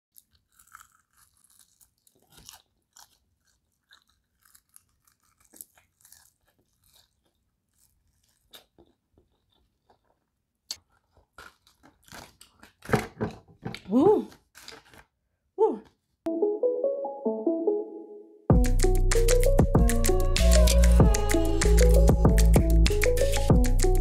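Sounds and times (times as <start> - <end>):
crunching and chewing chicken wings: 0.1 - 13.0.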